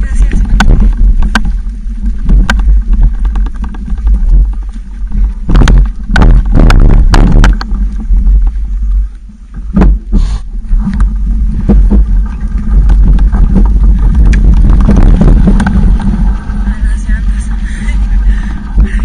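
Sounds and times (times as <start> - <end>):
bicycle rattling over rough ground: 0.0 - 19.0
wind buffeting microphone: 0.0 - 19.0.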